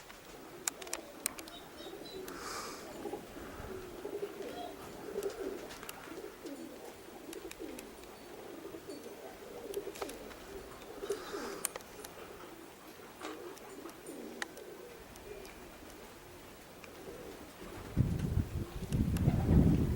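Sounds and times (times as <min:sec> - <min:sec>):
pigeons cooing: 0:00.0 - 0:19.9
sharp clicks: 0:11.6 - 0:12.2.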